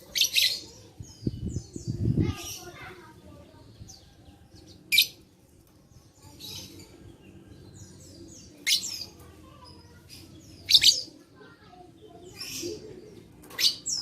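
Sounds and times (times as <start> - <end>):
soft bird chattering: 8.3 - 14.0.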